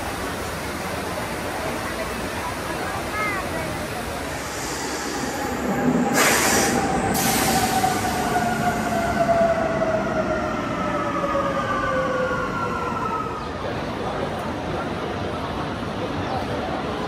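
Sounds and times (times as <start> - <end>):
train running: 0.0 - 17.0
burst of hiss: 4.2 - 9.0.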